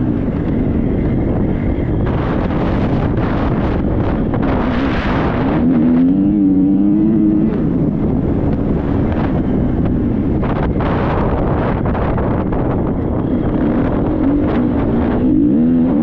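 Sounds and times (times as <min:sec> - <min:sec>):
motorcycle engine revving: 0:00.0 - 0:16.0
wind buffeting microphone: 0:00.0 - 0:16.0.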